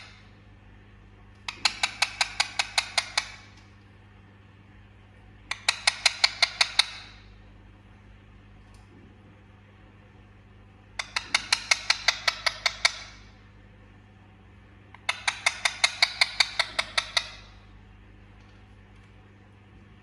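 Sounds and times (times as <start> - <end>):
parrot calling: 1.5 - 3.5, 5.5 - 7.3, 11.0 - 13.4, 14.9 - 17.7.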